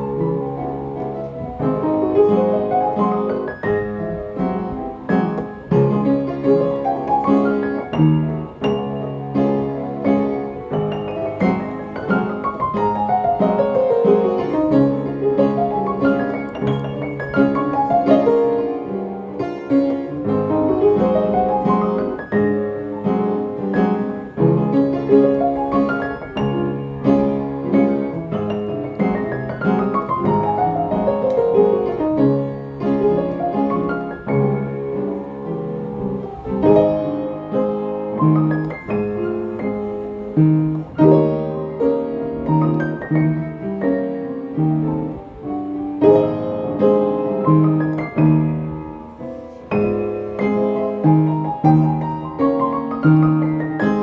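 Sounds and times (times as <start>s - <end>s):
piano music: 0.0s - 54.0s.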